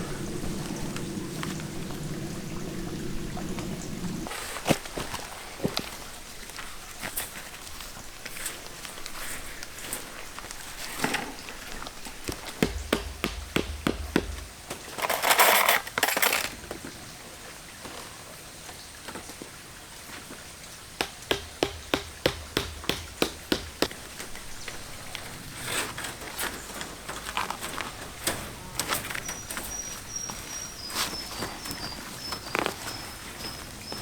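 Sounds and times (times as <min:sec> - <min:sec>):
stones clattering together: 0:12.3 - 0:16.7, 0:21.0 - 0:24.8
gravel scraping and sliding: 0:24.0 - 0:34.0.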